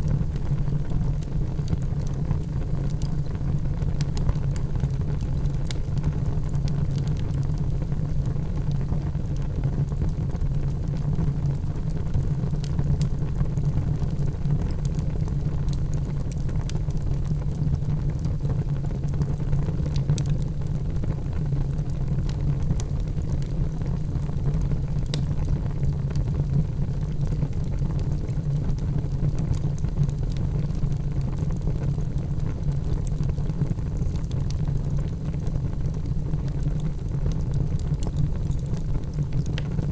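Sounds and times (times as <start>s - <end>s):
fire crackling and popping: 0.0s - 39.9s
wood fire flames rushing: 19.1s - 39.9s.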